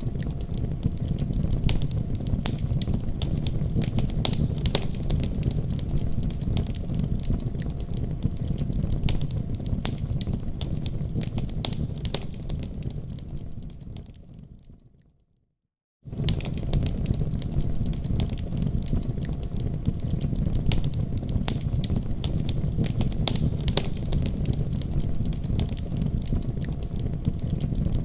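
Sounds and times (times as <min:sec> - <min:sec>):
wood crackling and popping: 0:00.0 - 0:14.9, 0:16.1 - 0:28.0
low rumble of flames: 0:00.0 - 0:15.0, 0:16.0 - 0:28.0.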